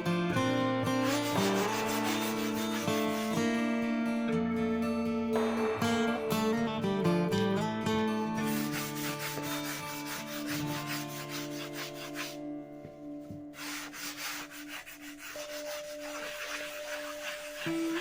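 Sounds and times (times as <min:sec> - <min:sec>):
background music with held notes: 0:00.0 - 0:18.0
rubbing strokes on wood: 0:00.9 - 0:03.8, 0:08.2 - 0:12.4, 0:13.2 - 0:18.0.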